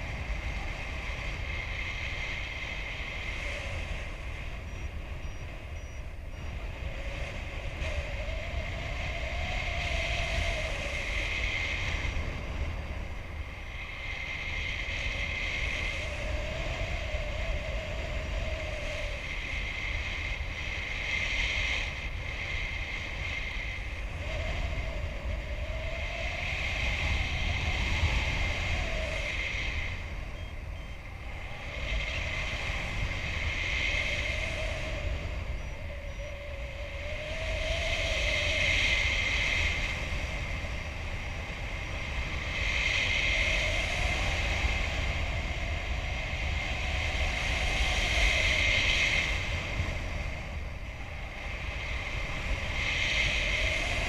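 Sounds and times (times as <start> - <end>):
faint wavering whine: 0.0 - 54.0
wind rushing over microphone: 0.0 - 54.0.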